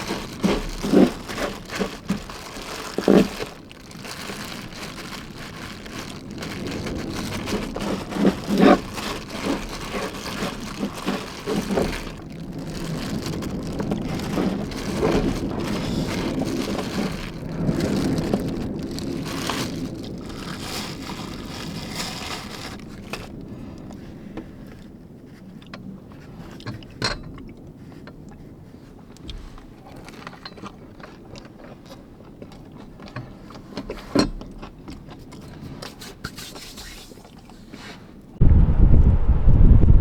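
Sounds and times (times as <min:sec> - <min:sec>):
scraping and light clicking: 0:00.0 - 0:23.4, 0:24.6 - 0:38.2
noisy rush: 0:38.4 - 0:40.0.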